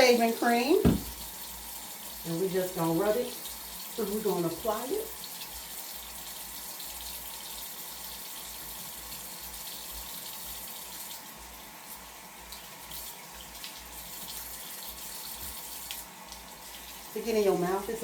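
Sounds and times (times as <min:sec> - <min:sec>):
tap running into sink: 0:00.6 - 0:01.4.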